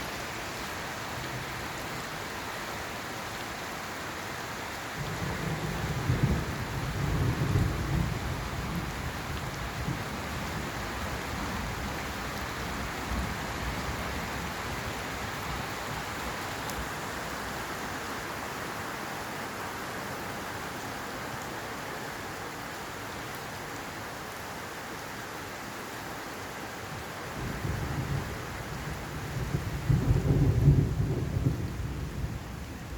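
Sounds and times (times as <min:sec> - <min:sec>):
heavy rain falling: 0:00.0 - 0:32.9
low roll of thunder: 0:05.0 - 0:11.9, 0:27.3 - 0:32.9.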